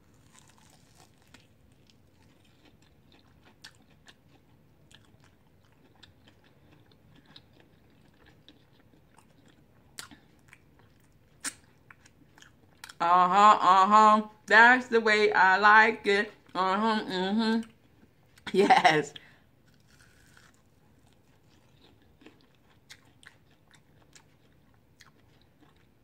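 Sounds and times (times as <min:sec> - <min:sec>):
crunchy chewing: 0:00.0 - 0:13.0, 0:19.6 - 0:26.0.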